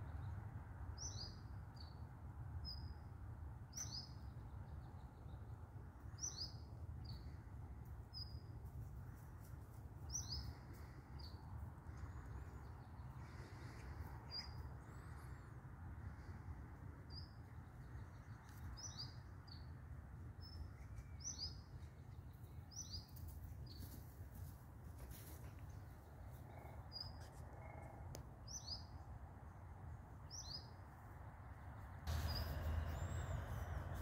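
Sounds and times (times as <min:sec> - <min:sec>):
low steady rumble: 0:31.6 - 0:34.0.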